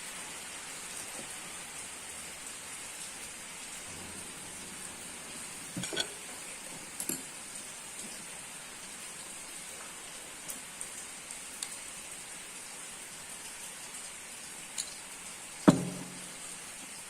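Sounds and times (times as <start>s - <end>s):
steady rain: 0.0s - 17.0s
loud thump: 15.7s - 16.3s.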